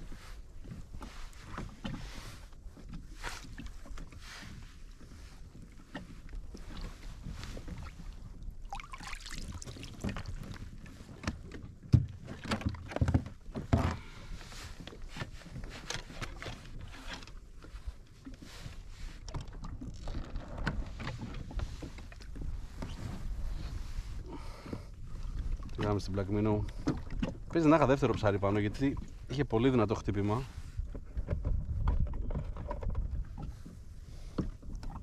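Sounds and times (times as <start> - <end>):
water rumble: 0.0 - 35.0
knocks and thuds against kayak: 9.8 - 17.3, 24.5 - 29.2, 30.7 - 35.0
wind on microphone: 30.4 - 35.0.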